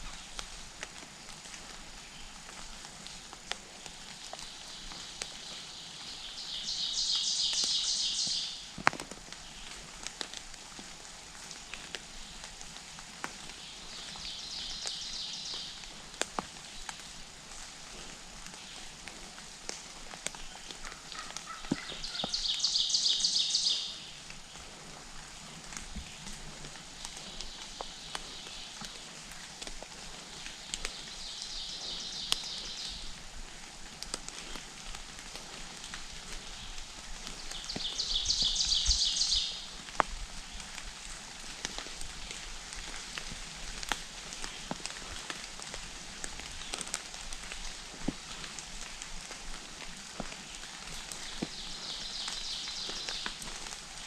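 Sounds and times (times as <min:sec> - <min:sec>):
small clicks and rustles: 0:08.7 - 0:15.0, 0:15.6 - 0:22.4, 0:24.2 - 0:38.0, 0:39.7 - 0:54.0
songbird trilling: 0:21.6 - 0:24.1, 0:37.8 - 0:39.6.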